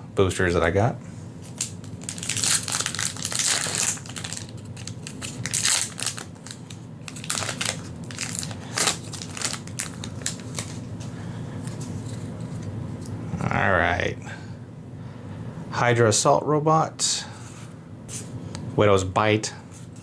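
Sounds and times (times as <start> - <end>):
foil wrapper crinkling: 1.4 - 12.6.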